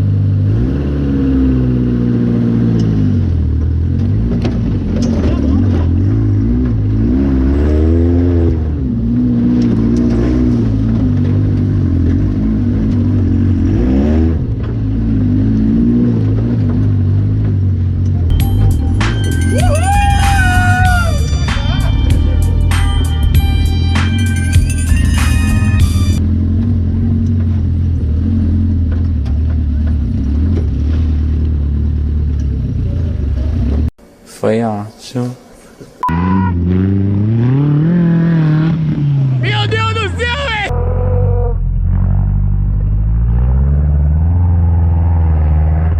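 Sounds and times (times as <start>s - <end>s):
off-road vehicle engine revving: 0.0s - 19.2s, 19.8s - 34.0s, 36.0s - 45.9s
music track: 18.3s - 26.2s.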